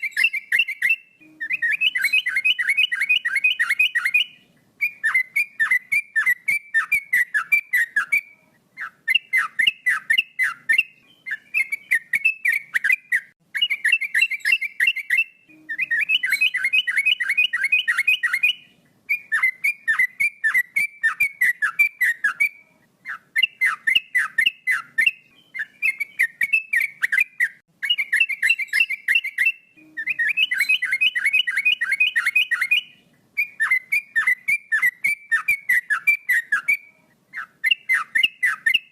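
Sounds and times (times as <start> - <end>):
bird singing whistled phrases: 0.0 - 38.9.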